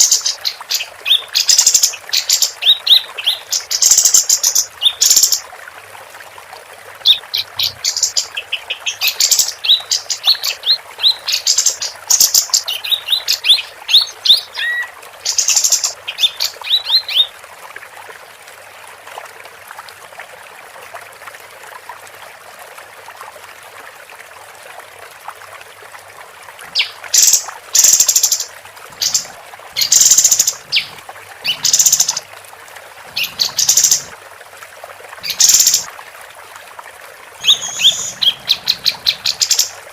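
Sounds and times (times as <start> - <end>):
bird chirps and trills: 7.1 - 17.3, 26.8 - 32.2, 33.2 - 34.1, 35.2 - 35.9, 37.4 - 39.8.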